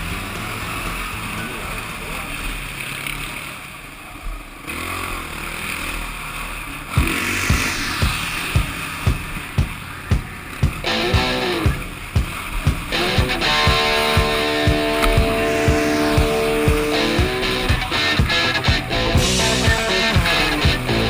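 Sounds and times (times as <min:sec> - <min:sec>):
vehicle engine: 0:00.0 - 0:21.0
song with steady drum beat: 0:07.0 - 0:21.0.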